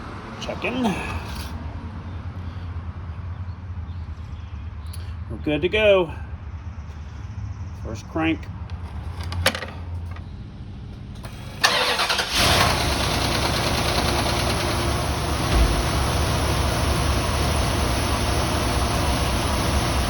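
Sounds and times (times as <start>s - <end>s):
car engine idling: 10.9s - 20.0s
car engine starter cranking: 11.2s - 17.1s.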